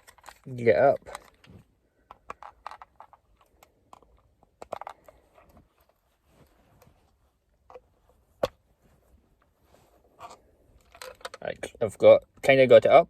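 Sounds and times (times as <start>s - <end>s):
plastic clicks and scrapes: 0.0s - 6.0s, 10.2s - 11.4s.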